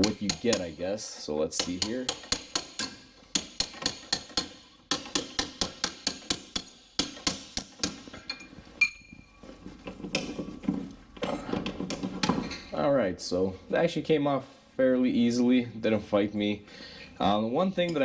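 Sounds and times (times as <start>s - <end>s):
hammer striking steel punch: 1.6s - 8.1s.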